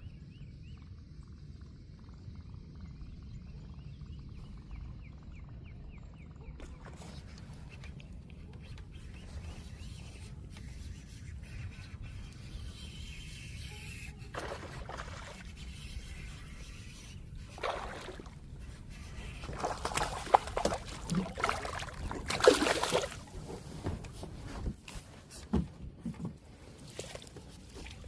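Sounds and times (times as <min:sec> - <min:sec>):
water splashing against kayak: 0:14.3 - 0:15.5, 0:17.6 - 0:18.4, 0:19.4 - 0:24.2.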